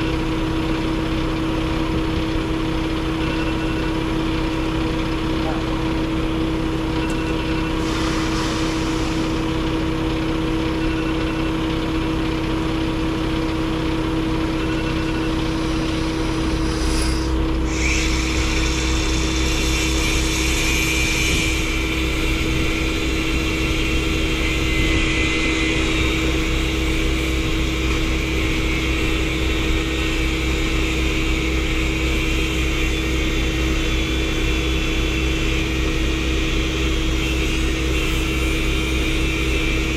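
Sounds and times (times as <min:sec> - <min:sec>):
truck engine running: 0:00.0 - 0:39.9
hiss: 0:07.3 - 0:11.0, 0:15.5 - 0:39.9.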